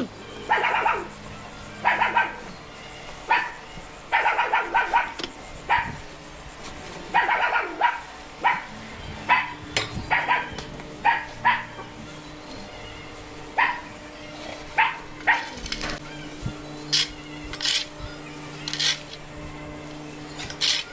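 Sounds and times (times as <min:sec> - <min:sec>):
dog barking: 0:00.5 - 0:01.1, 0:01.8 - 0:02.5, 0:03.3 - 0:06.0, 0:07.1 - 0:11.8, 0:13.6 - 0:14.0, 0:14.8 - 0:15.6.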